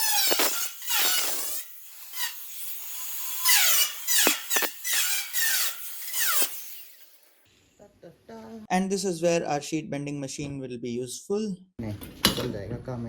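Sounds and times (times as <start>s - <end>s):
power tool cutting sheet steel: 0.0s - 7.4s.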